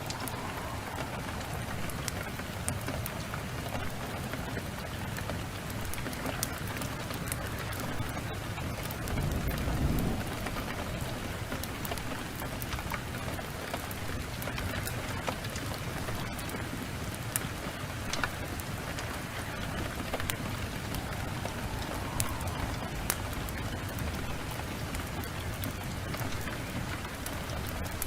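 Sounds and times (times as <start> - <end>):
low thunder rumble: 0.0 - 4.5, 7.4 - 14.0, 18.7 - 28.0
heavy rain: 0.0 - 28.0
wood fire crackles: 0.0 - 28.0.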